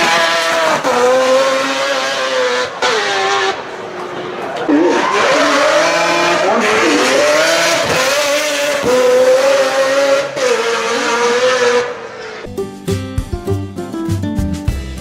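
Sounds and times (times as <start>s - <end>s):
car engine revving high: 0.0s - 12.4s
guitar music: 12.5s - 15.0s.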